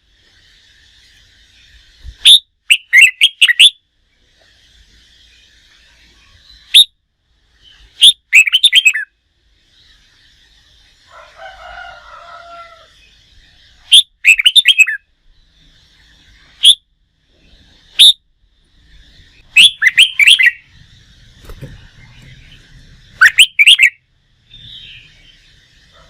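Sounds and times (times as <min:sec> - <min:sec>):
bulbul singing rapid notes: 0:17.8 - 0:25.9.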